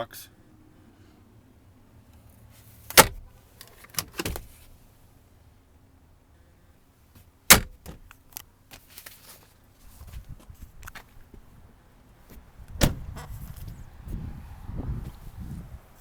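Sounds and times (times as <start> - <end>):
light clicks and rattles: 2.1 - 4.7
lid slamming: 2.9 - 3.3
latch snapping shut: 2.9 - 4.6, 7.5 - 8.2, 12.7 - 13.3.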